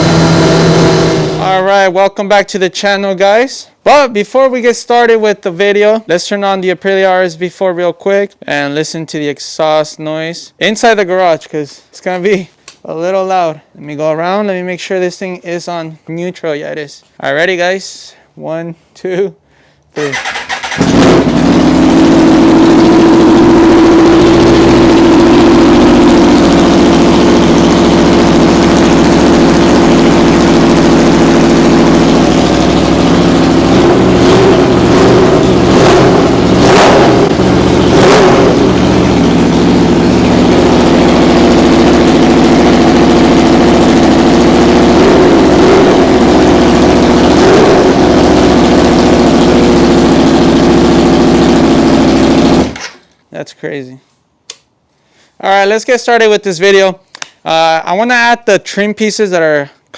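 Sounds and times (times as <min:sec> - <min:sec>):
motorcycle engine idling loud: 0:00.0 - 0:01.5, 0:20.0 - 0:52.8.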